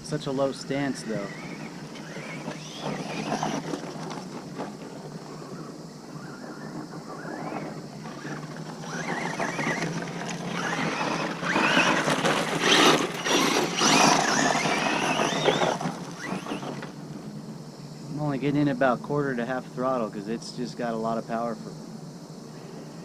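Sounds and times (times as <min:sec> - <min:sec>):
gear noise: 0:00.0 - 0:17.3
electric motor whining: 0:00.0 - 0:17.6
tyres scrabbling on loose dirt: 0:00.0 - 0:21.1.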